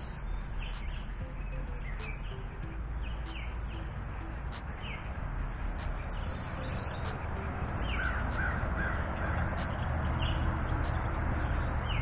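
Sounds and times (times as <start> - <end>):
low background rush: 0.0 - 12.0
bird calling: 6.2 - 12.0.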